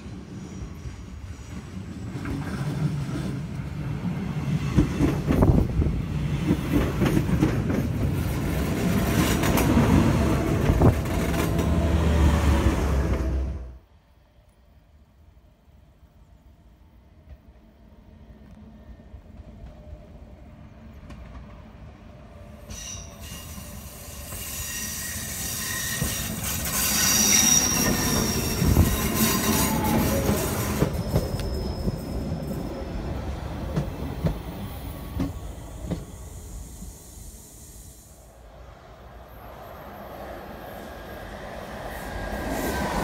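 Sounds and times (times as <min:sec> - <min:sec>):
train wheels squealing: 0:00.0 - 0:03.3, 0:22.4 - 0:33.9
electric train passing: 0:00.0 - 0:43.0.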